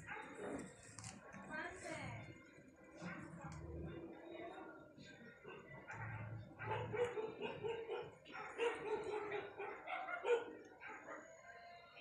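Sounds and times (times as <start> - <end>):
dog barking: 0.0 - 0.7, 5.5 - 11.4.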